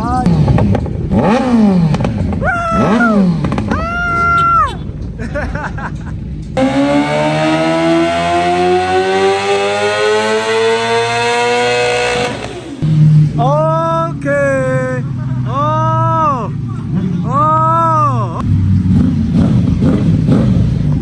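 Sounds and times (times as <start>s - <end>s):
motorcycle engine revving: 0.0s - 4.1s, 6.6s - 15.5s, 18.4s - 21.0s.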